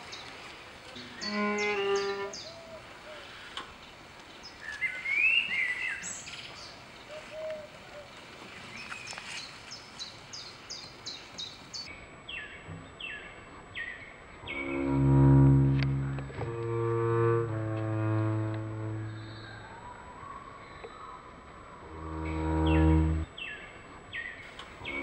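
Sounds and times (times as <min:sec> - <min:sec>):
small birds chirping: 0:00.1 - 0:11.9
bird bending call: 0:01.0 - 0:03.2
two-note pitched tone: 0:14.7 - 0:19.5.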